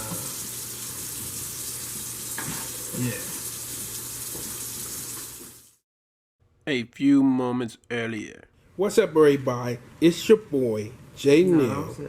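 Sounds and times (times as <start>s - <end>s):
kitchen cooking hiss: 0.0s - 5.8s.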